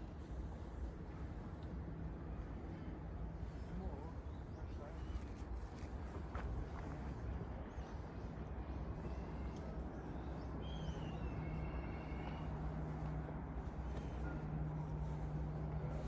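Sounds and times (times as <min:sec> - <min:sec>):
low outdoor rumble: 0:06.0 - 0:16.0.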